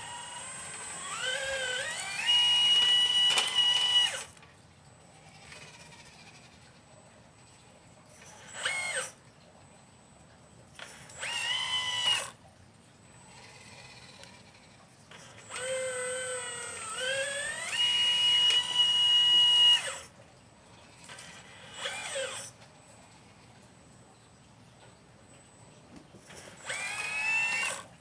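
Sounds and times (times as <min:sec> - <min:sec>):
electric motor whine: 0:00.0 - 0:04.4, 0:08.2 - 0:09.2, 0:10.8 - 0:12.4, 0:13.1 - 0:20.2, 0:21.0 - 0:23.4, 0:26.2 - 0:28.0.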